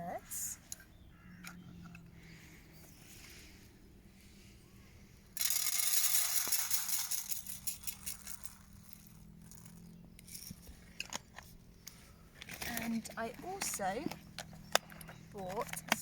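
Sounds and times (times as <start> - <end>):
bird seed pouring and rattling: 5.4 - 10.6.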